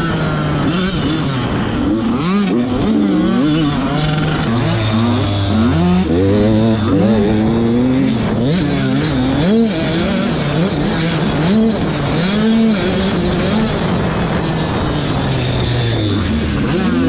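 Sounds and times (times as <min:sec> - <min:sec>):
motocross bike engines racing: 0:00.0 - 0:17.0.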